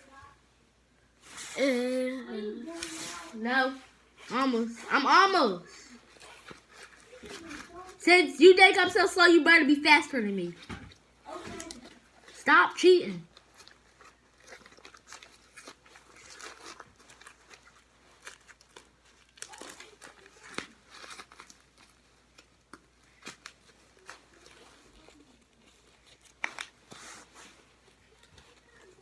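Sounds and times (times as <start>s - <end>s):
packaging rustling and crinkling: 5.9s - 8.0s, 13.2s - 29.0s.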